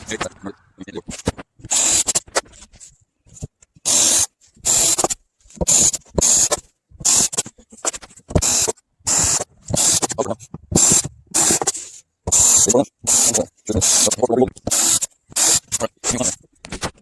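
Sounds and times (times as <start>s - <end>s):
hand tool scraping strokes: 1.3s - 16.4s.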